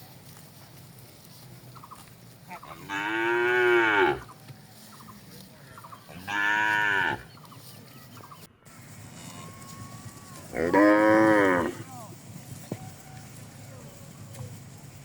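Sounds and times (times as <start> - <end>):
cattle mooing: 2.7 - 4.3, 6.2 - 7.2, 10.5 - 11.9.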